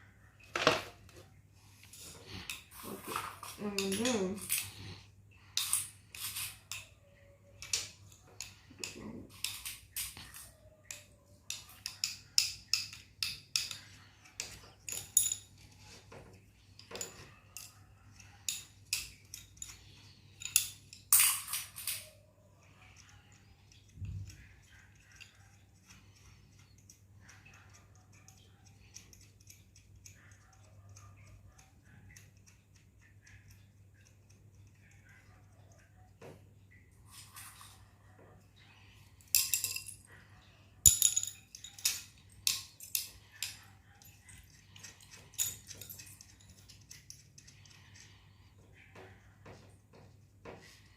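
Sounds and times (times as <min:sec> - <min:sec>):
metal parts clinking: 0:18.5 - 0:22.1, 0:39.3 - 0:40.1, 0:40.9 - 0:47.1.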